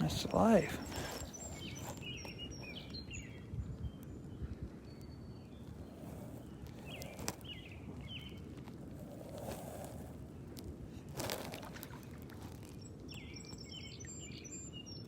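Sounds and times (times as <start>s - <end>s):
outdoor background noise: 0.0s - 15.0s
small birds chirping: 0.0s - 15.0s.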